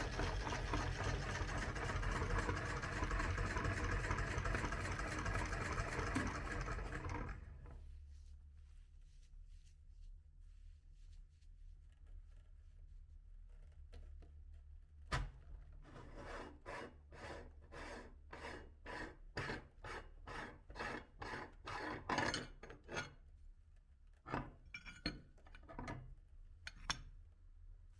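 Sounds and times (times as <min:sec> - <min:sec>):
meat grinder rasping: 0:00.0 - 0:07.7.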